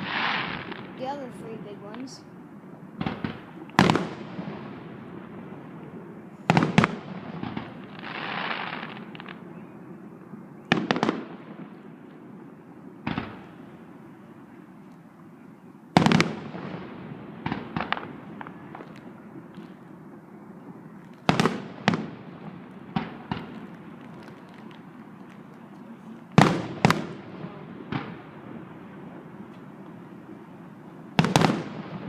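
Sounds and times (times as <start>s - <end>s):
firework shells bursting: 16.0s - 30.3s.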